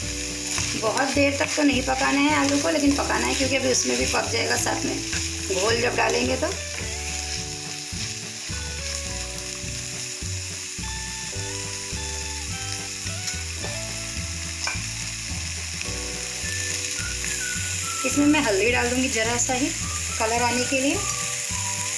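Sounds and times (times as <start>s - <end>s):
spatula stirring in pan: 0.0s - 9.8s
potatoes sizzling in oil: 0.0s - 21.9s.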